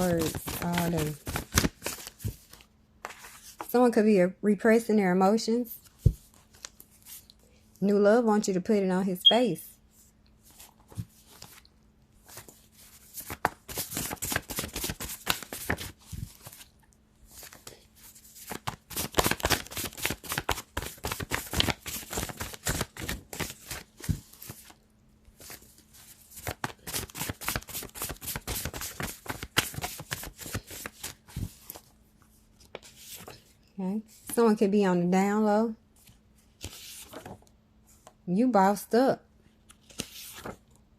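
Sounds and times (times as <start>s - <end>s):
cards being shuffled by hand: 0.0s - 3.7s, 10.4s - 24.8s, 25.4s - 31.9s, 36.0s - 38.1s, 39.6s - 40.8s.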